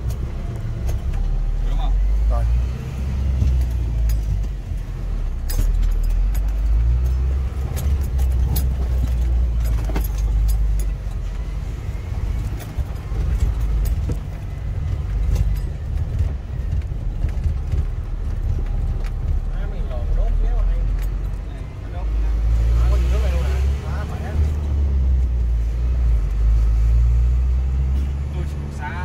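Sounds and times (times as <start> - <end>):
fire engine engine rumbling: 0.0 - 29.0
light clicks and rattles: 3.4 - 11.5.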